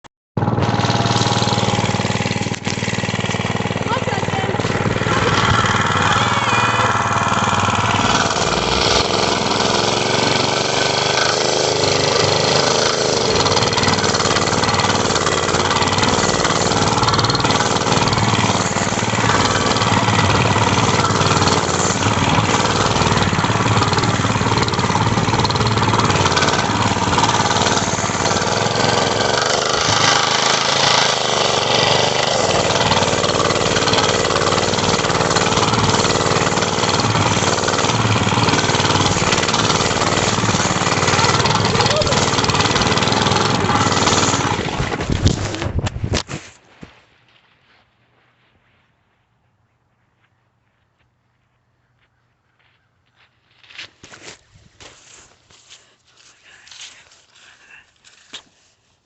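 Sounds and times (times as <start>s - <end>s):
small engine running: 0.4s - 46.4s.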